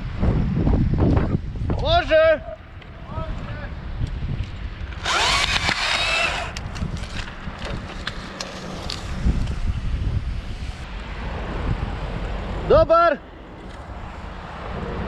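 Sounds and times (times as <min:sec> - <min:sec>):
wind buffeting microphone: 0:00.0 - 0:15.0
chainsaw cutting: 0:04.9 - 0:07.3.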